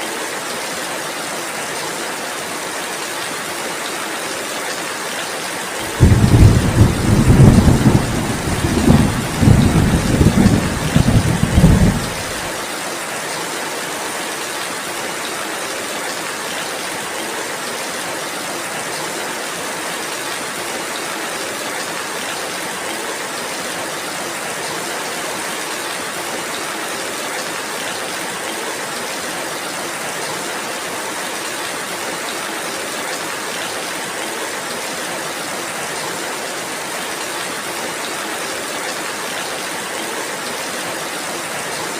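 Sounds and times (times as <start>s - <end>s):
steady rainfall: 0.0s - 41.9s
thunder rumble: 5.9s - 12.5s.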